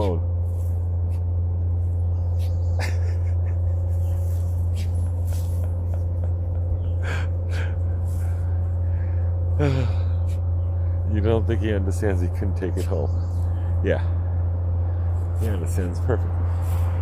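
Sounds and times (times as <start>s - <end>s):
loud low hum: 0.0s - 17.0s
dog snorting and breathing: 3.6s - 8.9s.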